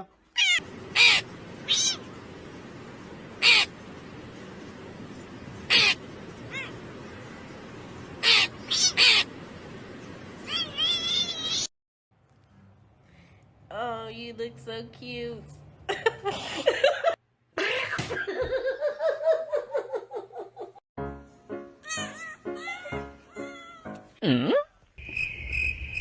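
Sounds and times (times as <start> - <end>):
animal making harsh calls: 8.2 - 9.3.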